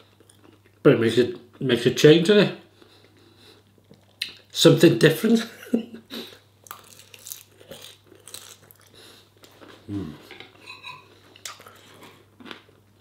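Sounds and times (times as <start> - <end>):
low voice hum: 9.9 - 10.3
cutlery scraping on plate: 10.6 - 11.1
mouth chewing sounds: 11.4 - 12.7.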